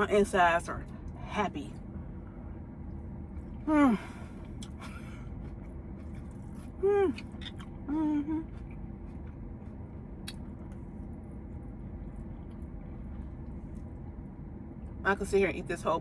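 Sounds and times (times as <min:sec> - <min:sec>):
low background hum: 0:00.0 - 0:16.0
woman humming mmm: 0:03.7 - 0:04.2, 0:06.8 - 0:07.2, 0:07.9 - 0:08.5
woman chewing salad: 0:04.3 - 0:15.0.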